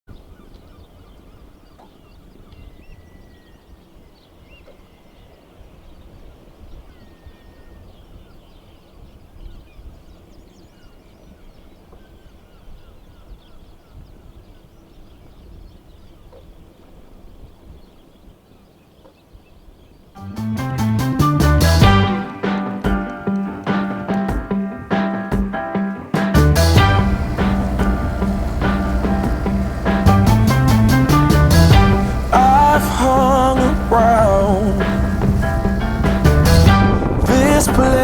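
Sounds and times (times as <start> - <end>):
gulls calling: 21.0 - 38.0
low steady rumble: 26.4 - 38.0.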